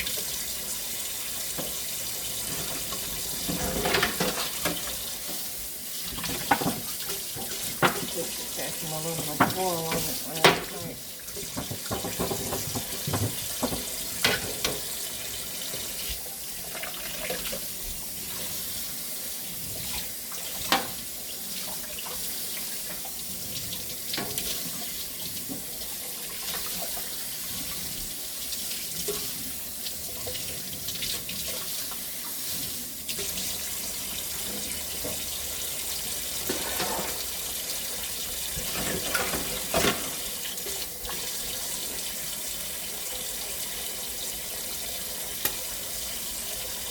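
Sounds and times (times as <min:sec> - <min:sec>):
tap running into a sink: 0:01.5 - 0:05.5, 0:06.1 - 0:08.3, 0:09.2 - 0:15.0, 0:20.6 - 0:21.1, 0:38.6 - 0:41.2.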